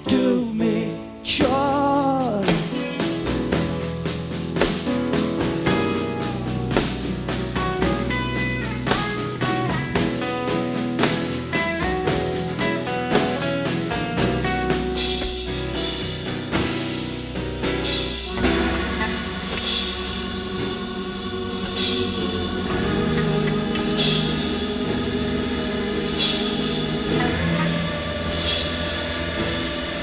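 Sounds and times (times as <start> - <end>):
live rock band playing: 2.3 - 30.0
cymbal crashes: 14.3 - 30.0.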